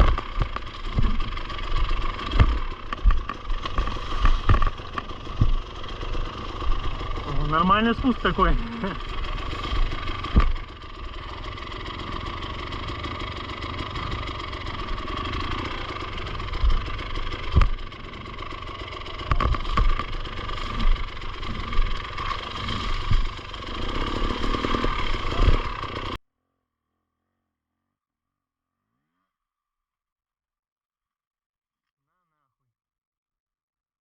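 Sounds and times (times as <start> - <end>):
bike thumping over ground: 0.0 - 6.1, 9.4 - 10.8
motorcycle engine at low revs: 0.0 - 26.2.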